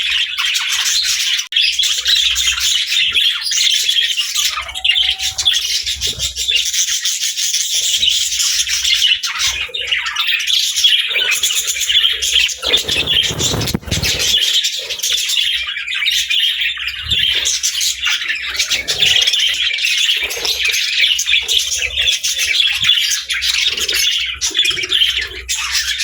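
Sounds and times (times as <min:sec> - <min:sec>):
budgerigars chattering and chirping: 0:00.0 - 0:26.0
rustling burst: 0:12.5 - 0:14.6.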